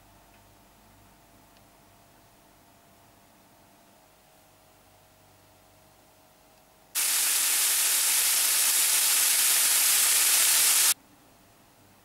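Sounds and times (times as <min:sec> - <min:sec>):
bacon and onion sizzling: 0:07.0 - 0:11.0.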